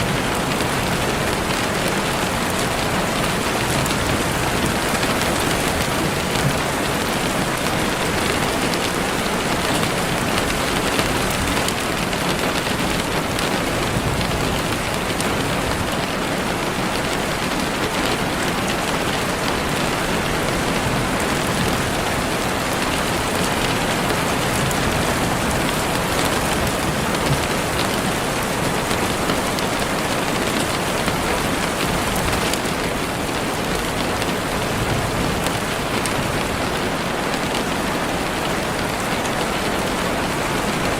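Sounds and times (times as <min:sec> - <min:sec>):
heavy rain on leaves: 0:00.0 - 0:40.9.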